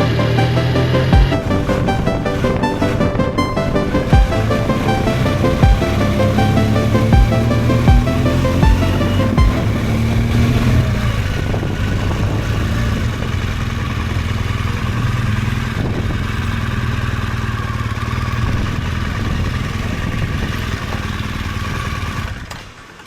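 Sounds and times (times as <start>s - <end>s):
motorcycle engine running: 4.1s - 22.5s.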